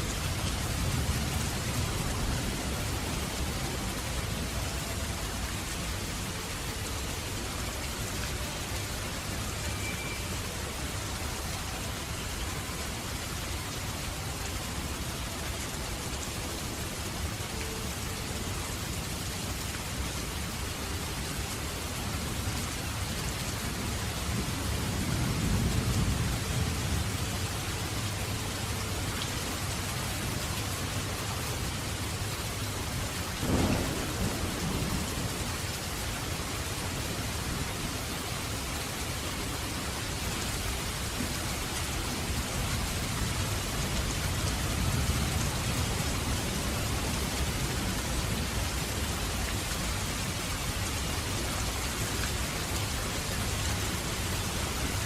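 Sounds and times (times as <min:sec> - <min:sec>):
heavy rain hissing: 0:00.0 - 0:55.0
low rolling thunder: 0:33.4 - 0:35.7.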